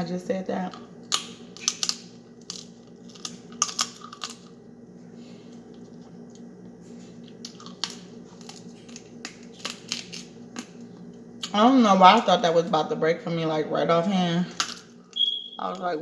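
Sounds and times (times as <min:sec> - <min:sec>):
low steady hum: 0:00.0 - 0:16.0
crab shells cracking: 0:01.0 - 0:04.5, 0:07.4 - 0:10.8.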